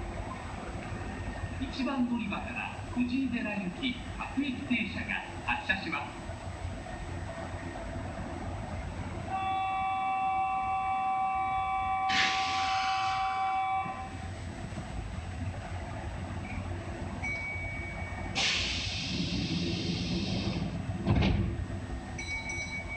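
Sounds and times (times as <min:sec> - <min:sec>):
train running rumble: 0:00.0 - 0:22.9
train horn: 0:09.3 - 0:14.2
air hiss: 0:12.1 - 0:13.2, 0:18.4 - 0:20.7.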